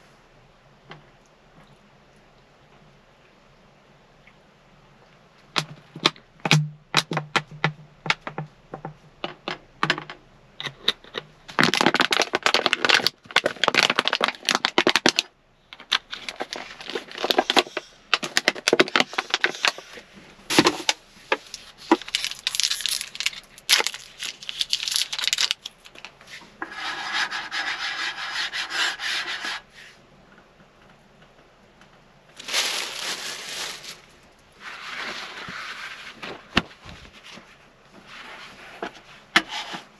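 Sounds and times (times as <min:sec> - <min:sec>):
sharp clicks and knocks: 0:05.6 - 0:13.0
rubbing and scraping: 0:15.9 - 0:30.0, 0:32.3 - 0:39.9.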